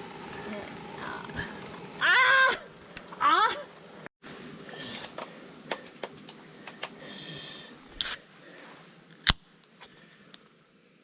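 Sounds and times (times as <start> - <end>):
rustling hiss: 2.6 - 9.1.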